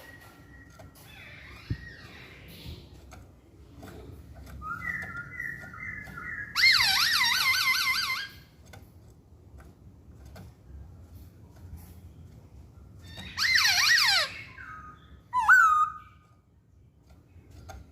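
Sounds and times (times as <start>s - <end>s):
bird whistling song: 4.4s - 8.4s, 13.0s - 16.4s.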